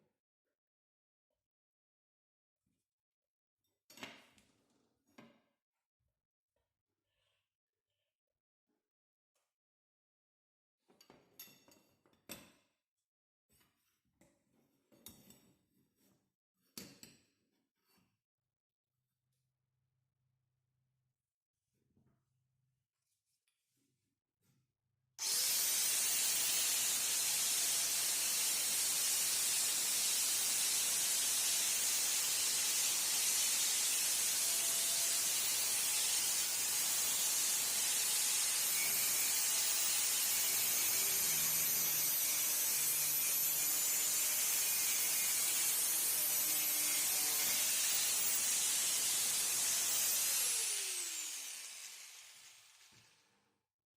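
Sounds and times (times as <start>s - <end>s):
grinder spinning down whine: 25.2s - 35.9s, 47.6s - 53.2s
angle grinder running: 25.2s - 53.2s.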